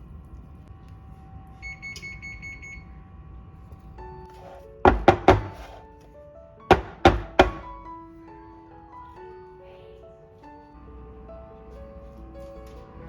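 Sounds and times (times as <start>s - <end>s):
background music: 4.0s - 13.0s
loud beat hits: 6.7s - 7.8s.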